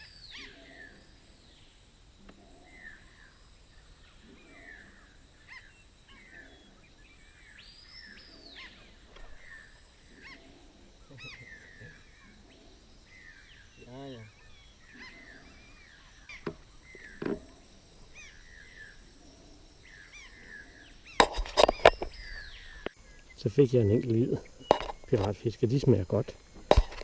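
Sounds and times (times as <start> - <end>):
faint insect hum: 0.0 - 27.0
birds chirping and whistling: 4.0 - 25.3.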